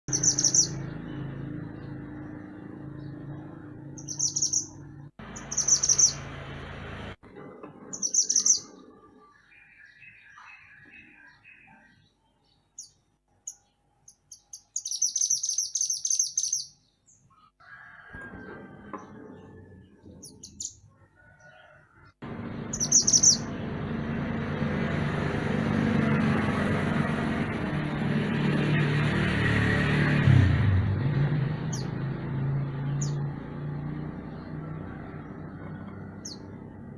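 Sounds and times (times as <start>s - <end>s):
songbird chirping: 0.1s - 6.4s, 7.8s - 17.6s, 18.3s - 24.0s.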